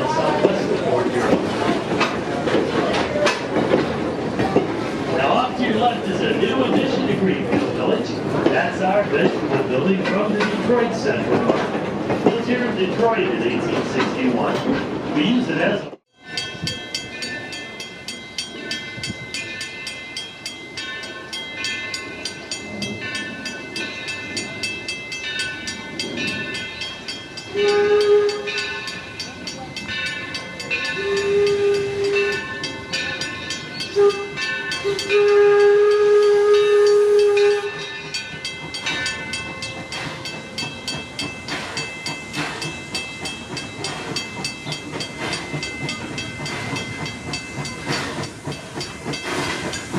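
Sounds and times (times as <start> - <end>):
steam locomotive clatter: 0.0 - 49.9
steam whistle blowing: 27.5 - 28.9, 30.8 - 32.6, 33.8 - 37.9.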